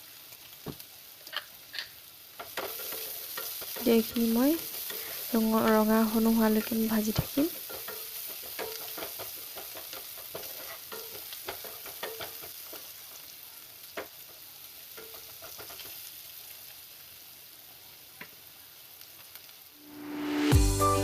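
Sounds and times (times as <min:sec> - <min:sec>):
food sizzling in oil: 0:00.0 - 0:21.0
spatula clicking against pan: 0:07.7 - 0:12.9.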